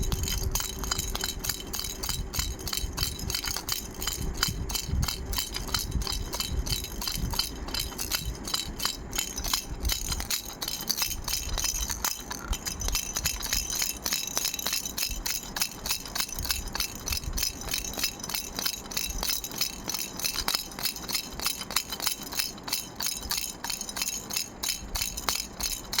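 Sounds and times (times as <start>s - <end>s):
baby rattle shaken: 0.0s - 26.0s.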